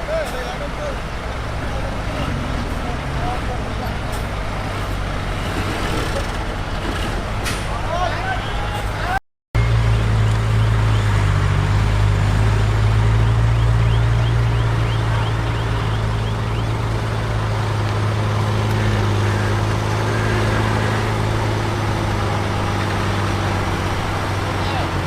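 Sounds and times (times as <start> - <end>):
heavy machinery diesel engine: 0.0 - 25.0.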